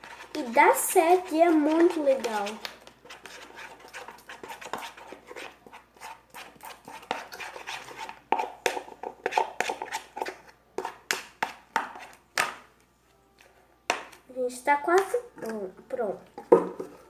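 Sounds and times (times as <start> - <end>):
spoon stirring slime: 0.0 - 12.7.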